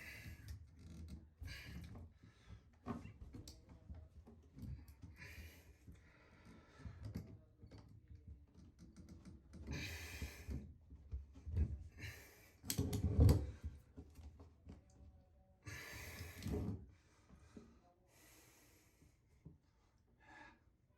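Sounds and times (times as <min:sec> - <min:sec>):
pliers clicking and scraping on drain: 0:12.6 - 0:13.0
person breathing with effort: 0:15.6 - 0:16.5.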